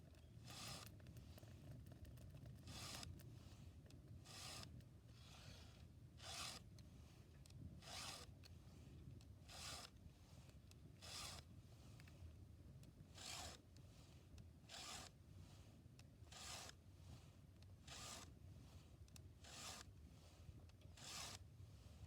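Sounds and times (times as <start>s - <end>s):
file rasping on chainsaw chain: 0.4s - 0.9s, 2.6s - 3.2s, 4.2s - 6.7s, 7.8s - 8.3s, 9.5s - 10.0s, 11.0s - 11.5s, 13.1s - 13.6s, 14.7s - 16.8s, 17.8s - 18.4s, 19.4s - 20.0s, 20.9s - 21.5s.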